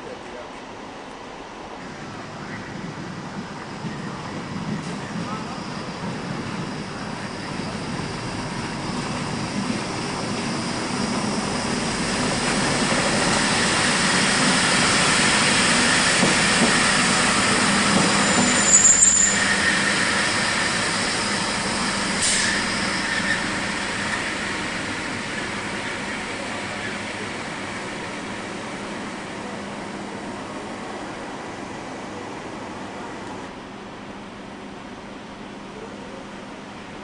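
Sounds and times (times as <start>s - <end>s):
passenger train passing: 0.0s - 37.0s
high-pitched wheel squeal: 17.4s - 24.4s.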